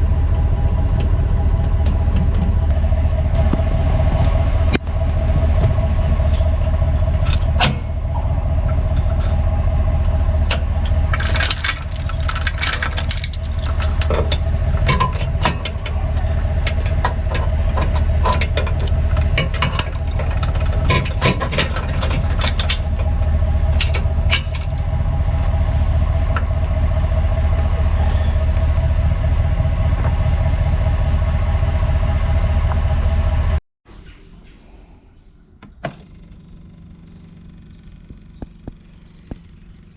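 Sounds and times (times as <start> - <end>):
vehicle engine droning: 0.0 - 39.9
rattling and clanking: 0.8 - 28.9.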